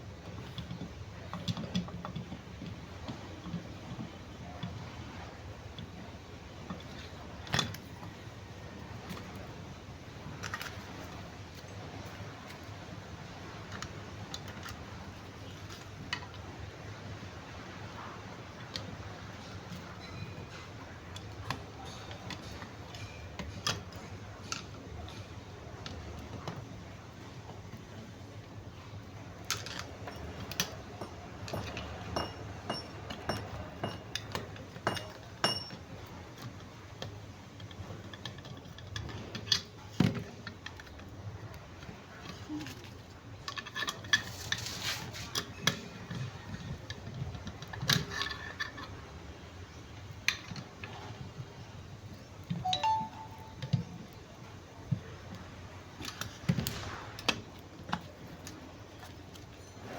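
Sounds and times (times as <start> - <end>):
metal parts and tools clinking: 29.5 - 36.5.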